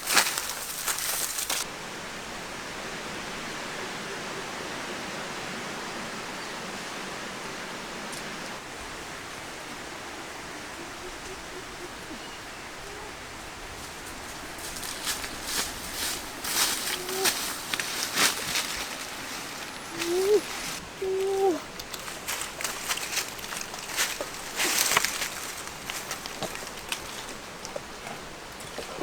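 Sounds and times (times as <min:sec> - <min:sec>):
loud rustling and crackling: 0:00.0 - 0:01.7, 0:14.0 - 0:20.8, 0:21.8 - 0:29.0.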